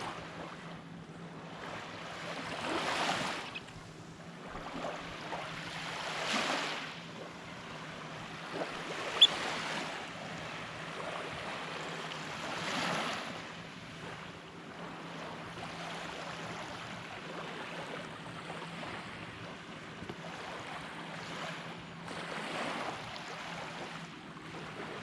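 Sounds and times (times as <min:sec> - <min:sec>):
small waves breaking on beach: 0:00.0 - 0:25.0
sharp high-pitched chirp: 0:09.2 - 0:09.5.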